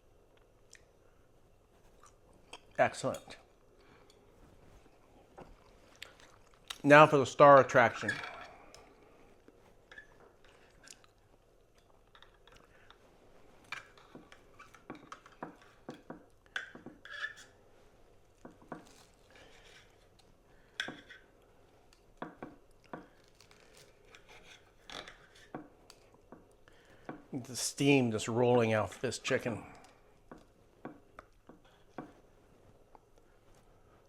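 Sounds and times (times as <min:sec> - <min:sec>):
cutlery scraping a plate: 0:13.7 - 0:17.6.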